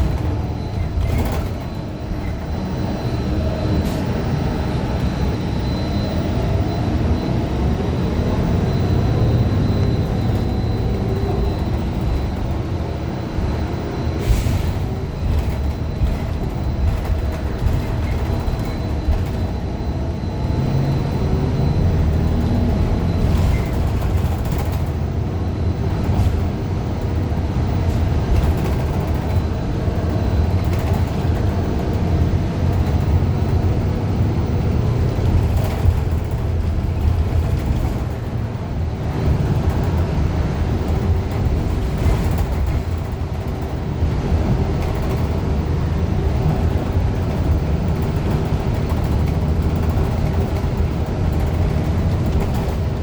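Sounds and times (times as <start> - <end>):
bus engine running: 0.0 - 53.0
road noise rumble: 0.0 - 53.0.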